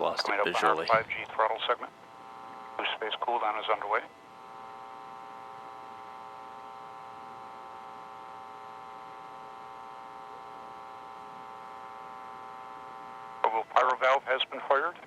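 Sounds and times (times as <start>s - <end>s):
commentator speaking: 0.0s - 1.9s, 2.7s - 4.1s, 13.4s - 15.0s
electronic hum of many tones: 0.0s - 15.0s.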